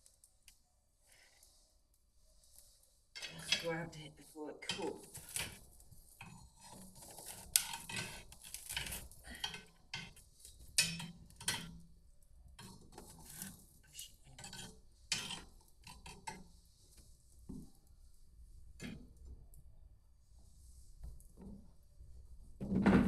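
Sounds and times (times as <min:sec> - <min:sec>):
utensils clinking against cookware: 0:03.2 - 0:04.0, 0:04.6 - 0:05.6, 0:06.2 - 0:11.7, 0:12.6 - 0:16.4.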